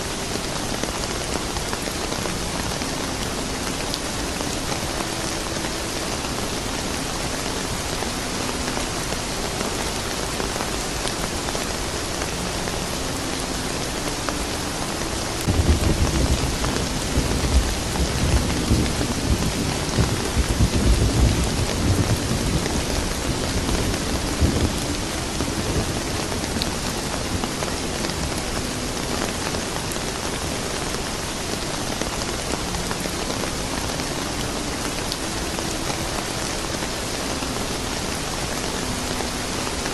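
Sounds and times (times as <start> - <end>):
steady rain falling: 0.0 - 39.9
thunder rumbling: 15.4 - 28.4.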